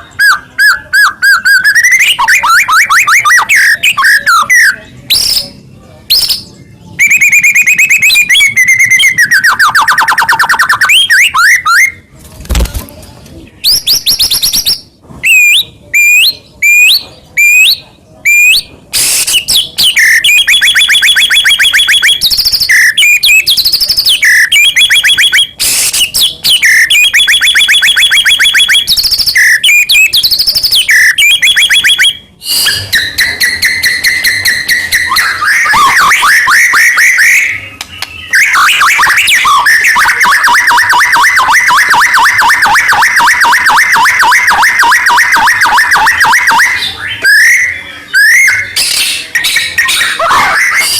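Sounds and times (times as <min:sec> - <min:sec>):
songbird singing: 0:19.4 - 0:40.7.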